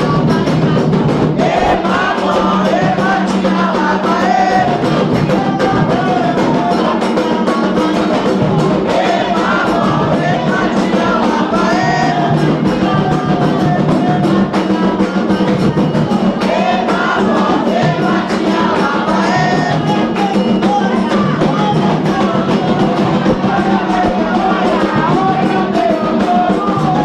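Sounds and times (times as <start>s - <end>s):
hand drums playing rhythm: 0.0s - 27.0s
voices singing: 0.0s - 27.0s.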